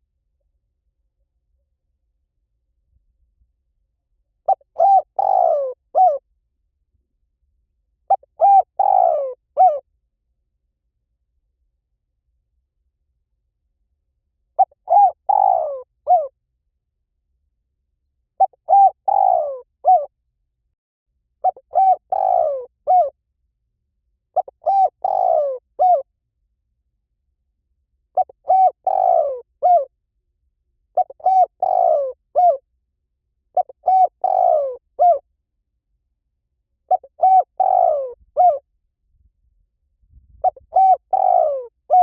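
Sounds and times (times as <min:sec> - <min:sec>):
dove cooing: 0:04.4 - 0:06.2, 0:08.1 - 0:09.8, 0:14.6 - 0:16.3, 0:18.4 - 0:20.1, 0:21.4 - 0:23.1, 0:24.4 - 0:26.0, 0:28.2 - 0:29.9, 0:31.0 - 0:32.6, 0:33.6 - 0:35.2, 0:36.9 - 0:38.6, 0:40.4 - 0:42.0.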